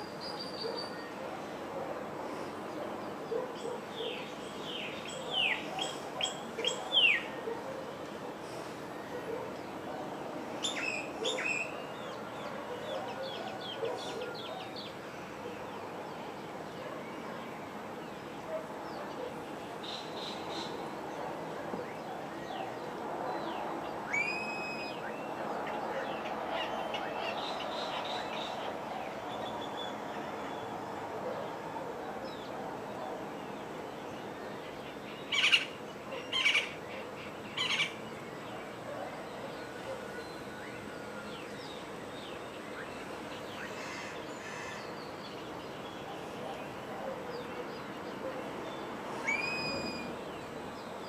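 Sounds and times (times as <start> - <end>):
background hiss: 0.0 - 51.0
loud harsh bird call: 24.1 - 25.3, 49.1 - 50.2
loud sharp bird calls: 24.1 - 29.9, 35.2 - 38.0, 49.1 - 50.2
faint bird chirps: 49.2 - 50.2.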